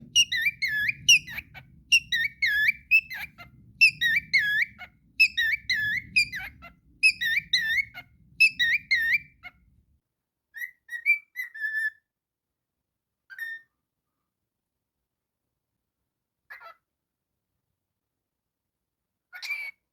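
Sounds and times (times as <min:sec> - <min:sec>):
cockatiel whistling: 0:00.1 - 0:09.5.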